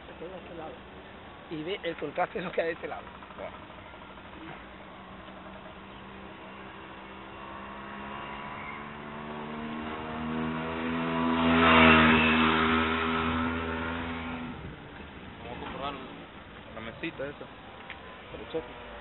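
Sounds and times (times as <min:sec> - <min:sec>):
vehicle passing close by: 0:05.8 - 0:19.0.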